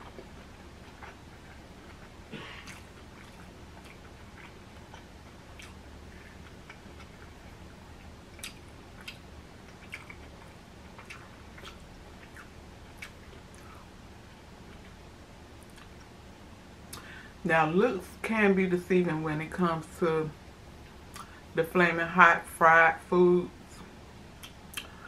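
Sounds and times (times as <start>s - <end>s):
crunchy food chewing: 0.0s - 15.0s
steady low hum: 0.0s - 25.0s.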